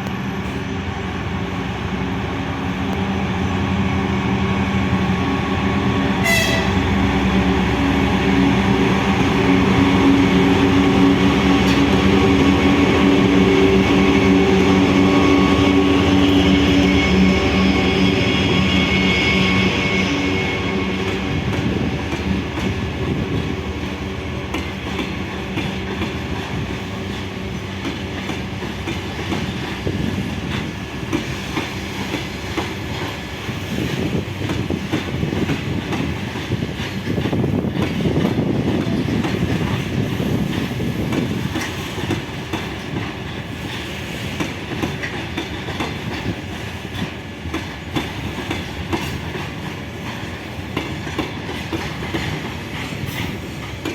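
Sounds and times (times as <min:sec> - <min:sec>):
train wheels clattering over rail joints: 0:20.8 - 0:53.9.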